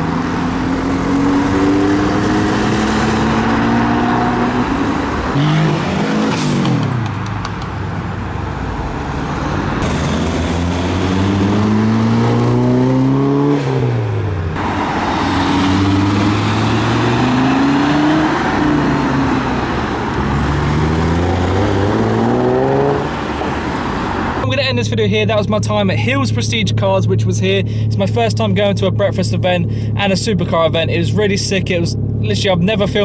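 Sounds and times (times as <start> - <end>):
car engine accelerating: 0.0 - 24.5.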